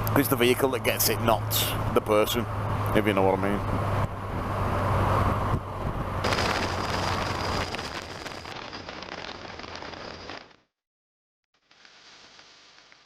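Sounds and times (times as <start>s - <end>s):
wind rush and road noise: 0.0s - 10.1s
hiss: 11.7s - 13.0s.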